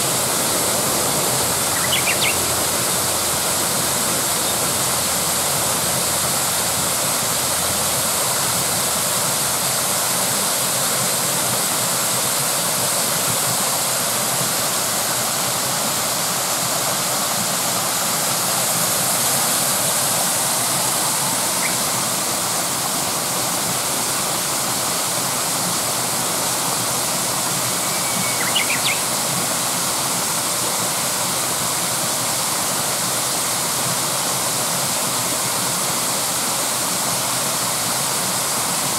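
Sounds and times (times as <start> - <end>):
stream water rushing: 0.0 - 38.9
high chirp: 1.5 - 3.2, 21.5 - 22.0, 27.7 - 29.1.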